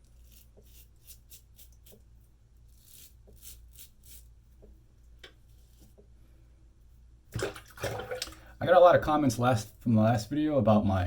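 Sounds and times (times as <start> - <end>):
razor scraping stubble: 0.0 - 4.6.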